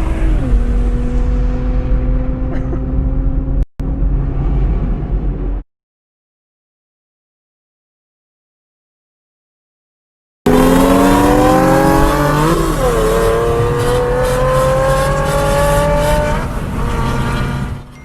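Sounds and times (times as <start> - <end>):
car engine revving at full throttle: 0.0 - 5.6, 10.5 - 17.9.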